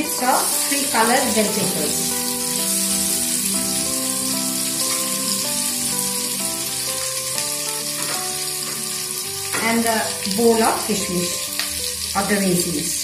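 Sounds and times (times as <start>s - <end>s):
background music melody: 0.0s - 13.0s
vegetables sizzling in oil: 0.0s - 13.0s.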